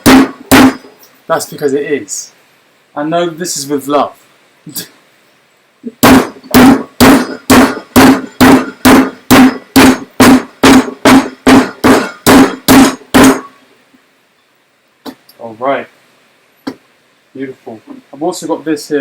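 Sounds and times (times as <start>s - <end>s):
meat being pounded: 0.0s - 1.0s, 6.0s - 13.6s.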